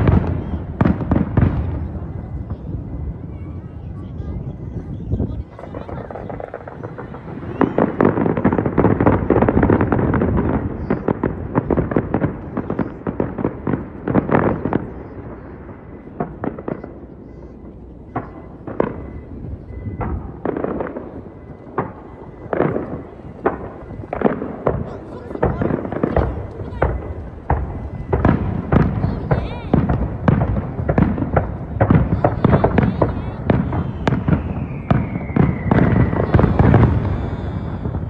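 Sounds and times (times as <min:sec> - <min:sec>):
fireworks bursting: 0:00.0 - 0:38.0.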